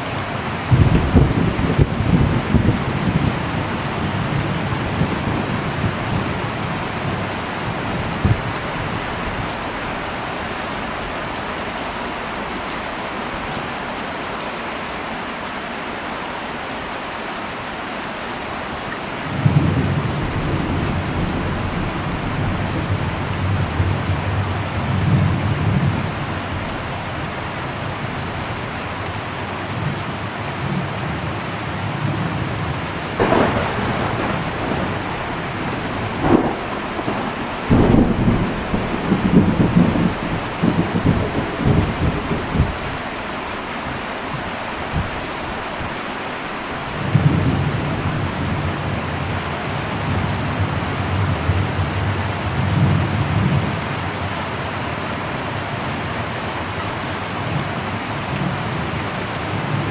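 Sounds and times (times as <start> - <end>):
heavy rain on a metal roof: 0.0 - 59.9
thunder: 0.6 - 10.0, 19.3 - 27.0, 32.0 - 42.9.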